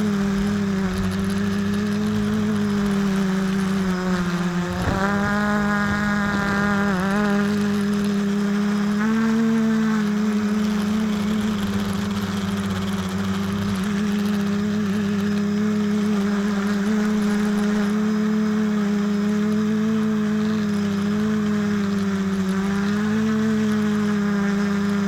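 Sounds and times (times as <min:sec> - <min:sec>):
quadcopter motors humming: 0:00.0 - 0:25.0.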